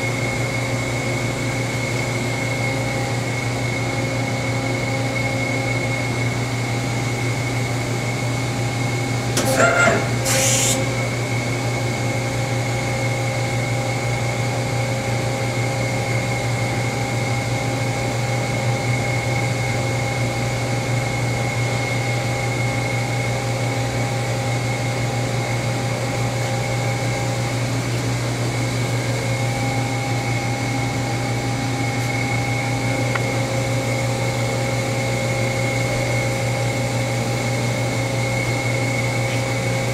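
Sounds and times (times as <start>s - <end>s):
constant machine whine: 0.0s - 39.9s
machine humming: 9.2s - 11.2s
loud hiss: 9.5s - 11.0s.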